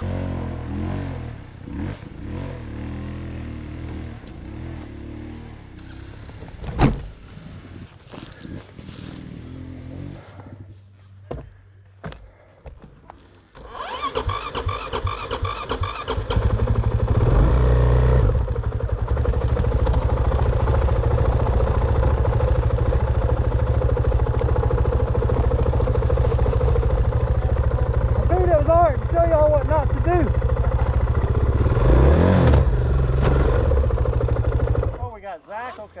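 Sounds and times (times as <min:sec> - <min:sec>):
dirt bike engine starting: 0:13.5 - 0:35.0
engine starter clicks: 0:13.6 - 0:16.6.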